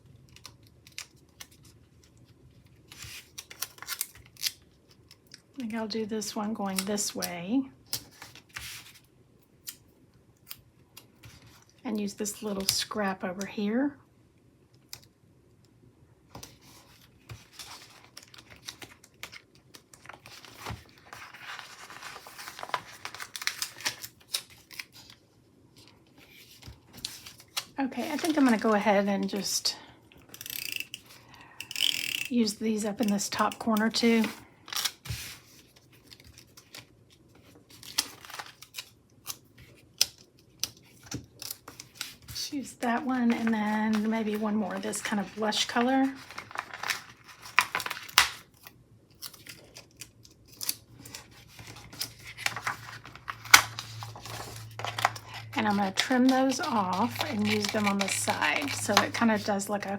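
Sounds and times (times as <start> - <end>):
paper rustling and crinkling: 0.3 - 5.3, 7.9 - 9.1, 16.3 - 29.5, 33.4 - 59.9
paper stickers clicking and snipping: 43.0 - 48.4, 49.2 - 59.9.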